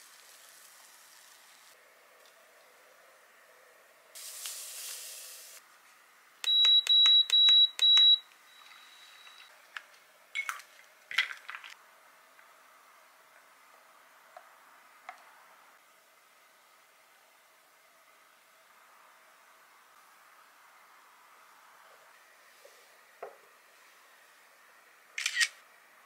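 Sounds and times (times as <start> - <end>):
short hiss: 4.2 - 5.6
appliance beeping: 6.4 - 9.5.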